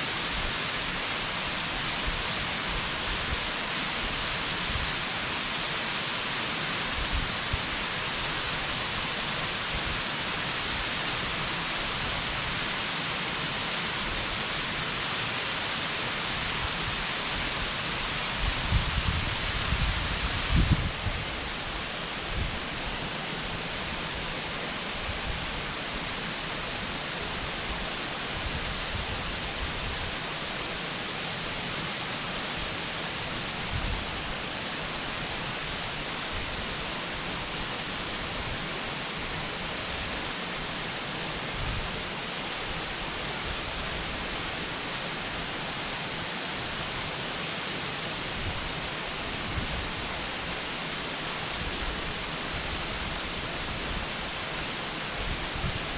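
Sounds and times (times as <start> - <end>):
distant waterfall rushing: 0.0 - 55.9
wind buffeting microphone: 18.4 - 21.3.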